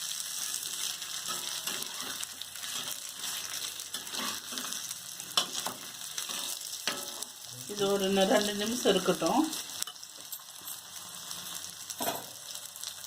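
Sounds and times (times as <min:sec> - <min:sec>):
fish sizzling in a pan: 0:00.0 - 0:13.0
spatula scraping and knocking pan: 0:00.4 - 0:07.3.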